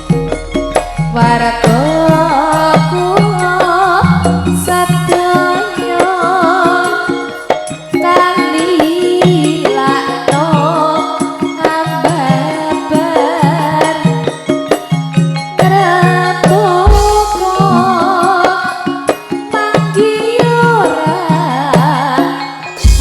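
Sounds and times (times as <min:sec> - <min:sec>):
metallic percussion strokes: 0:00.0 - 0:11.0, 0:11.6 - 0:20.8, 0:22.1 - 0:23.0
wavering vocal melody: 0:00.0 - 0:14.4, 0:15.6 - 0:23.0
hand drums: 0:00.0 - 0:23.0
deep boom: 0:04.0 - 0:05.5.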